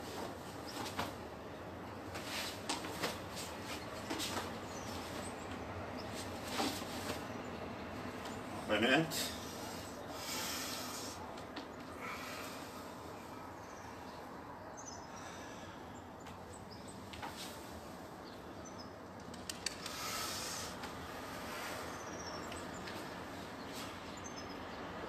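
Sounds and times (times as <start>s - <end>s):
outdoor background hum: 0.0s - 25.0s
sharp clicks: 19.2s - 20.0s.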